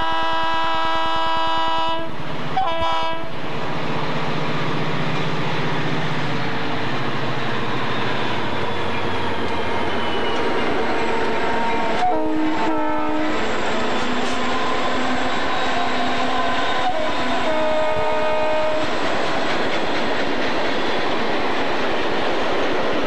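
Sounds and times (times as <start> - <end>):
locomotive air horn blasts: 0.0 - 3.3, 12.0 - 13.4, 16.8 - 18.9
train wheels rolling: 2.3 - 23.0.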